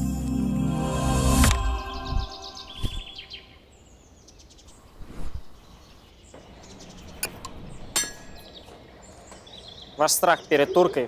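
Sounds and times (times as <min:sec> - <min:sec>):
birds chirping: 0:01.6 - 0:11.0.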